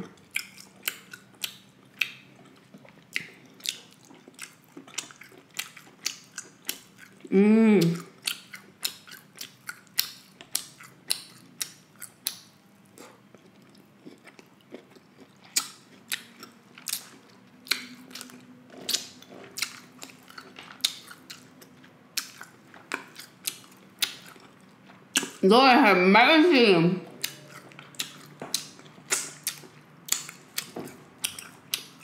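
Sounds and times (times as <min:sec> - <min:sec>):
lip smacks: 0:27.2 - 0:32.0
wet mouth clicks: 0:27.2 - 0:32.0.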